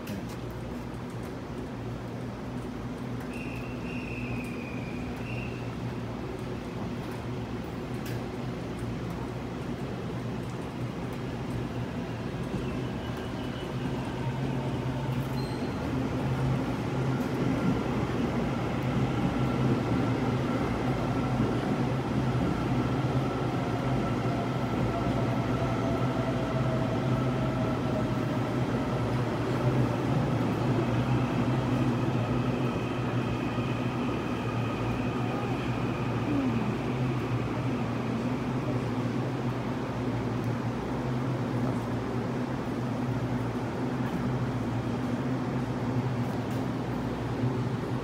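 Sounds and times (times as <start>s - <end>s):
electric train rumble and hum: 0.0s - 48.0s.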